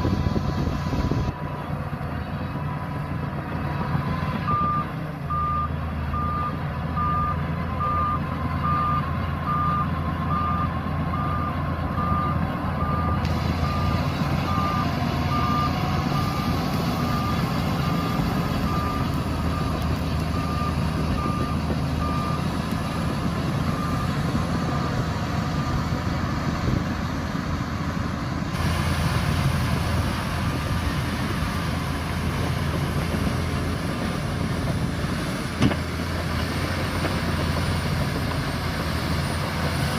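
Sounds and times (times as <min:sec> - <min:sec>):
heavy diesel engine running: 0:00.0 - 0:39.9
reversing alarm beeping: 0:04.5 - 0:22.5, 0:23.6 - 0:26.5.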